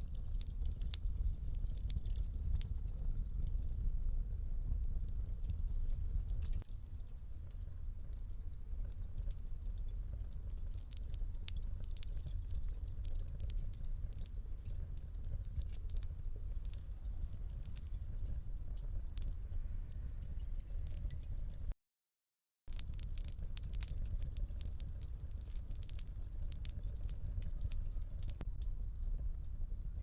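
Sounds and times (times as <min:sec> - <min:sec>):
fire crackling and popping: 0:00.0 - 0:21.7, 0:22.7 - 0:30.0
low rumble of fire flames: 0:00.0 - 0:21.7, 0:22.7 - 0:30.0.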